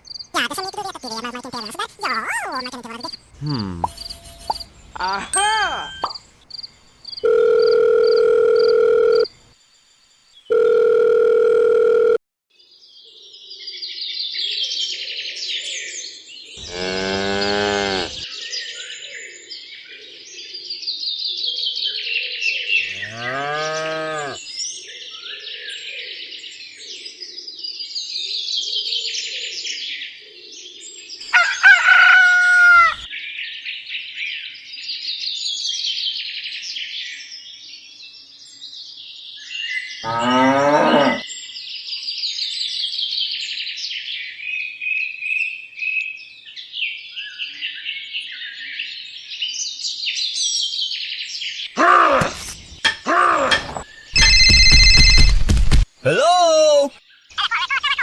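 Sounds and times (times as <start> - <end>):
birds chirping: 0.4 - 6.2, 16.6 - 18.2, 22.8 - 24.4, 31.3 - 33.1, 40.0 - 41.2
high short animal call: 1.6 - 6.2, 16.6 - 18.2, 22.8 - 24.4, 31.3 - 33.1, 40.0 - 41.2, 51.8 - 57.0
cows mooing: 16.6 - 18.2, 22.8 - 24.4, 40.0 - 41.2
electronic beeps: 54.2 - 55.8.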